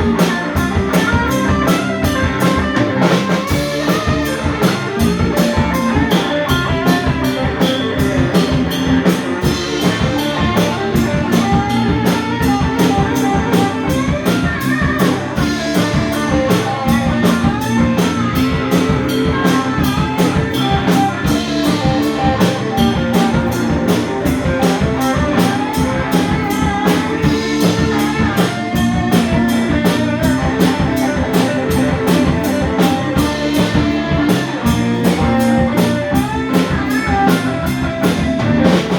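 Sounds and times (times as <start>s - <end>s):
bass: 0.0s - 38.9s
drum kit steady beat: 0.0s - 38.9s
electric guitar: 0.0s - 38.9s
keyboards: 0.0s - 38.9s.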